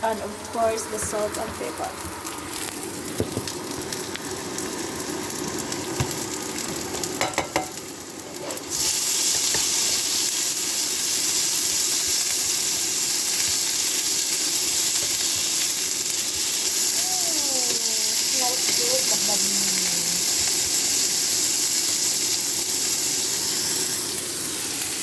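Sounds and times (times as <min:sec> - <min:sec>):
meat sizzling in a pan: 0:00.0 - 0:25.0
utensil clicking on pan: 0:06.0 - 0:07.9.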